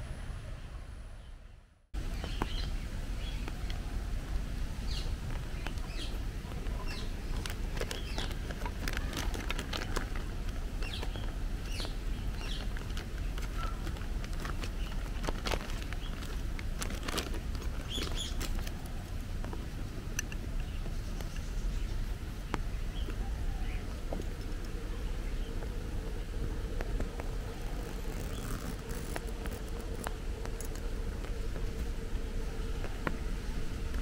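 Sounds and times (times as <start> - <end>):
steady low rumble: 0.0 - 34.0
birds chirping and calling: 4.8 - 9.6, 10.8 - 16.3, 17.8 - 18.6.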